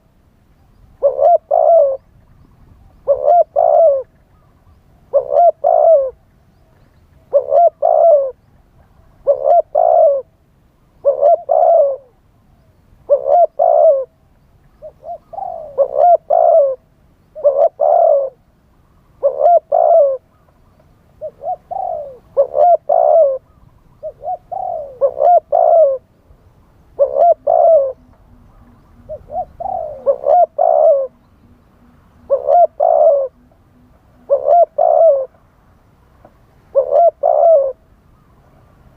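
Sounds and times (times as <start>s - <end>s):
dove cooing: 0.9s - 10.4s, 11.0s - 12.2s, 13.0s - 35.4s, 36.7s - 38.3s.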